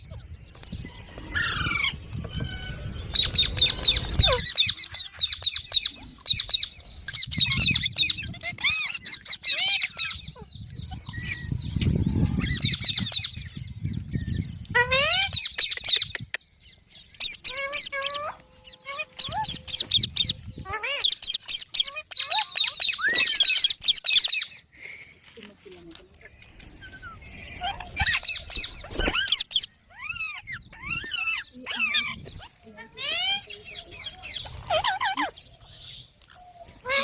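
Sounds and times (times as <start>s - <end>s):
low rustling rumble: 0.2s - 4.7s
parrot calling: 1.3s - 13.3s, 17.2s - 24.6s, 26.8s - 37.0s.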